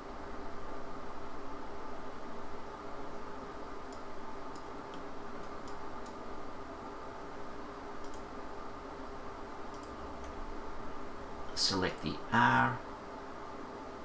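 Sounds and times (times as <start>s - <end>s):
background hum and hiss: 0.0s - 14.0s
computer mouse clicking: 3.9s - 6.2s, 8.0s - 8.3s, 9.7s - 10.4s.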